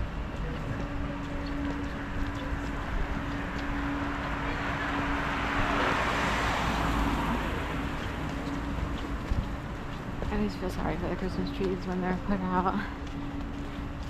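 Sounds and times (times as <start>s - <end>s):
car driving past: 3.4s - 9.8s.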